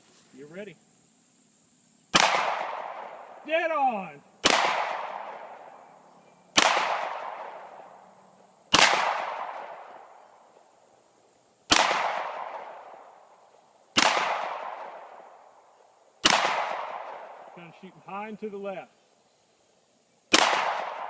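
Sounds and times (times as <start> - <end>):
pistol shots: 2.1 - 3.2, 4.4 - 5.6, 6.5 - 7.7, 8.7 - 10.1, 11.7 - 13.0, 14.0 - 15.2, 16.2 - 17.4, 20.3 - 21.0.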